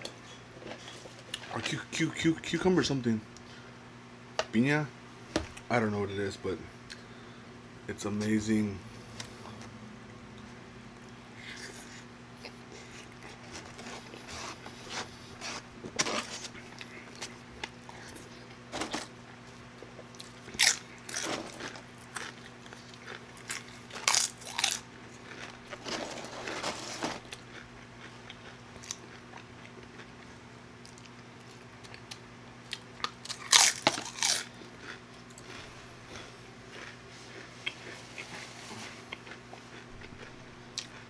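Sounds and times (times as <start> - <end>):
faint steady hum: 0.0 - 41.0
crunching tortilla chips: 20.1 - 30.1, 30.8 - 41.0.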